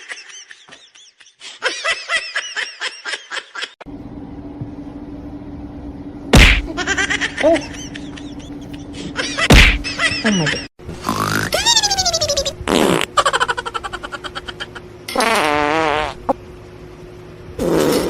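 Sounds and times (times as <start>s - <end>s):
buzzy squeaky fart noises: 11.0s - 11.7s, 12.4s - 13.1s, 15.2s - 16.4s, 17.6s - 18.0s.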